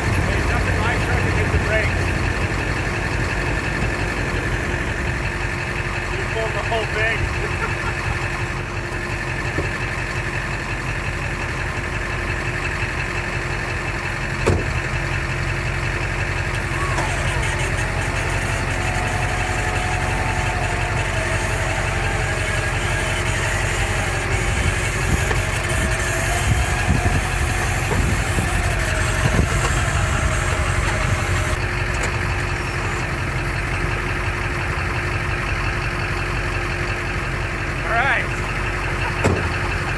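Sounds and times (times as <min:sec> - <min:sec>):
vehicle engine idling: 0:00.0 - 0:39.9
wavering whine: 0:16.5 - 0:31.7.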